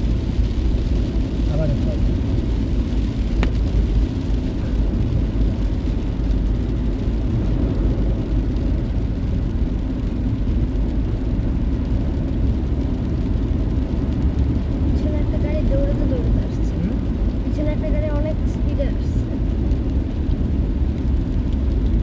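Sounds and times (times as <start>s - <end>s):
road and engine rumble in car: 0.0s - 22.0s.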